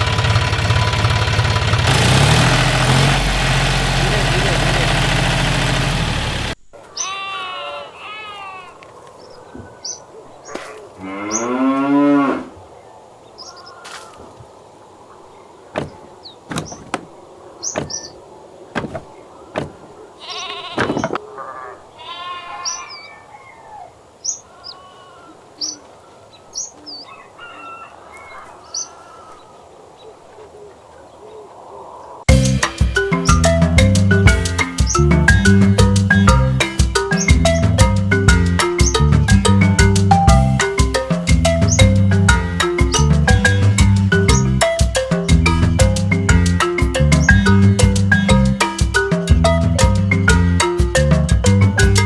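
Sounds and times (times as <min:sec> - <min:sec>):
birds chirping: 0:08.3 - 0:11.8, 0:12.6 - 0:32.3, 0:32.9 - 0:39.1, 0:40.2 - 0:48.6
cattle mooing: 0:11.0 - 0:12.6, 0:20.2 - 0:22.8.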